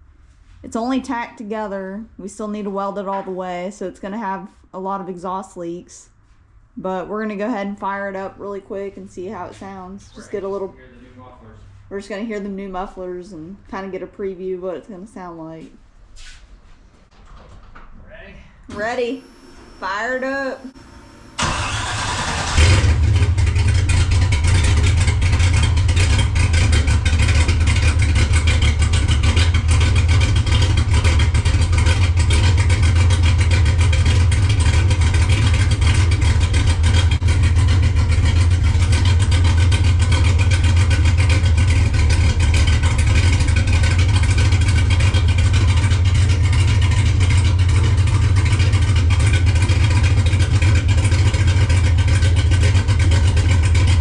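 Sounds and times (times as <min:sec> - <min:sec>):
car engine idling: 0:18.7 - 0:54.0.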